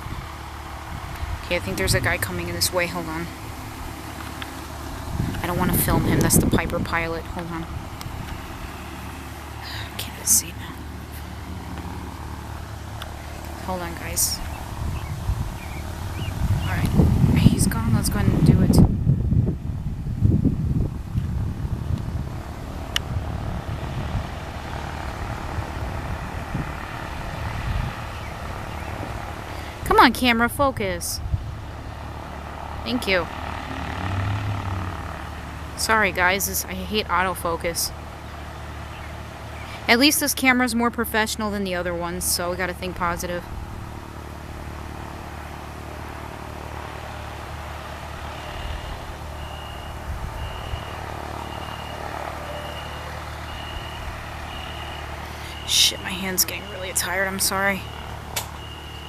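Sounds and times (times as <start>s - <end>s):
wind buffeting microphone: 0.0s - 36.4s, 46.7s - 51.4s
steady low rumble: 0.0s - 49.4s
propeller airplane engine: 0.0s - 59.0s
vehicle reversing alarm beeping: 1.5s - 12.6s, 48.0s - 59.0s.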